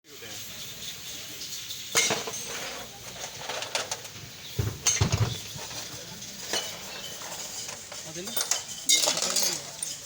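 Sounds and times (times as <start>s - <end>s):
sharp metallic clinks and knocks: 1.4s - 10.0s
low thuds: 4.5s - 5.6s.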